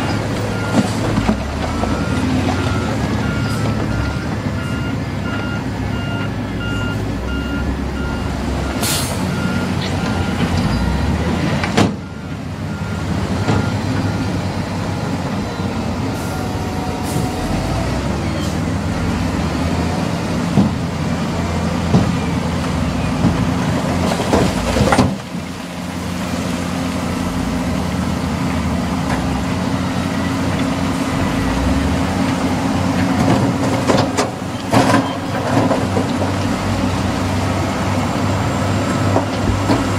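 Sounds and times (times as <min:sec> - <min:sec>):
heavy diesel machinery running: 0:00.0 - 0:39.9
reversing alarm beeping: 0:01.7 - 0:11.3, 0:12.0 - 0:18.5.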